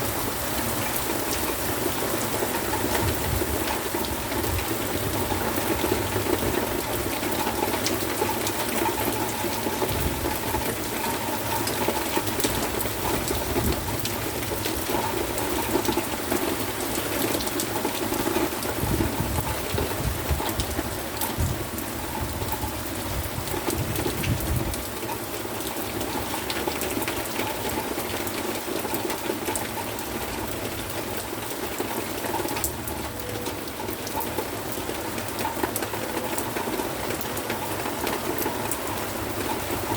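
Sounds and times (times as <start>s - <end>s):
heavy rain pouring: 0.0s - 39.9s
strong wind rumbling: 18.8s - 20.8s, 21.4s - 24.8s.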